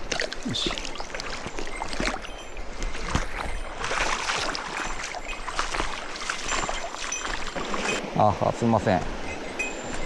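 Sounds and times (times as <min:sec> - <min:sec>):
short water splashes: 0:00.0 - 0:08.0
mountain stream rushing: 0:03.7 - 0:10.0.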